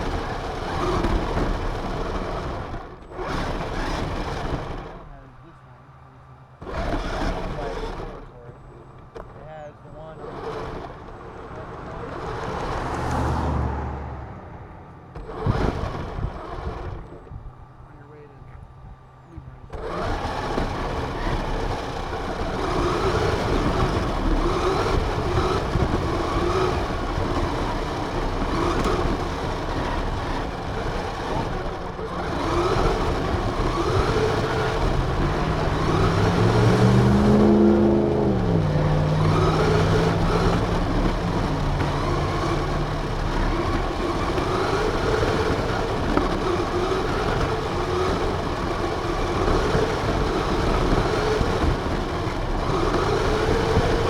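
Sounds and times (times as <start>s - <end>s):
rc car motor revving: 0.0s - 13.8s, 15.1s - 18.6s, 19.3s - 54.0s.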